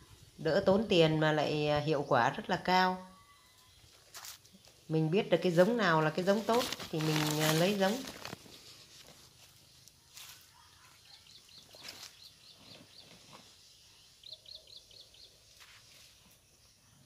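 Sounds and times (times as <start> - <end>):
small bird chirping: 8.6 - 17.0.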